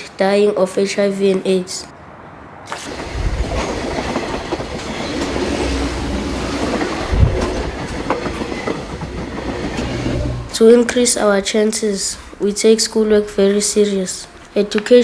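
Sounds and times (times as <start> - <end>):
vehicle rumble: 9.6 - 11.1.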